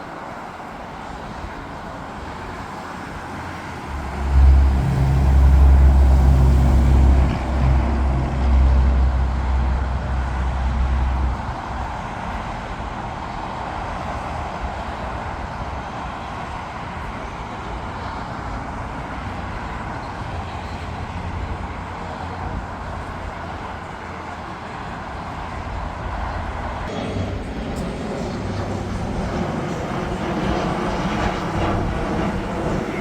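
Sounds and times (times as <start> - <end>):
jet engine rushing: 0.0 - 12.6, 26.8 - 33.0
low humming engine: 1.8 - 14.4, 24.6 - 33.0.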